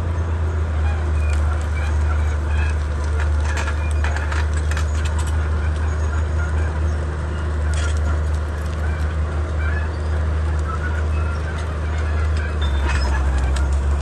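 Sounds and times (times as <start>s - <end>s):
bulldozer diesel engine droning: 0.0s - 14.0s
clanks and cracks: 1.3s - 5.8s, 7.7s - 9.1s.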